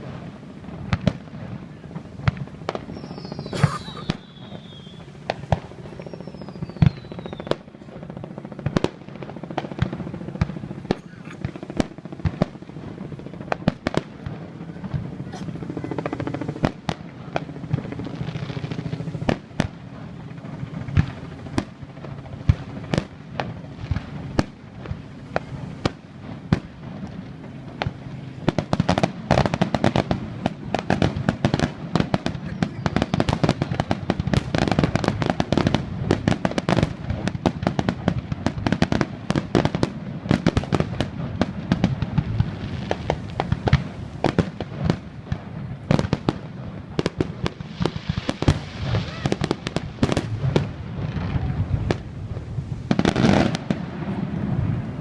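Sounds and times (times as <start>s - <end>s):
fireworks booming and cracking: 0.0s - 55.0s
falling firework whistles: 2.2s - 7.7s, 31.3s - 35.7s.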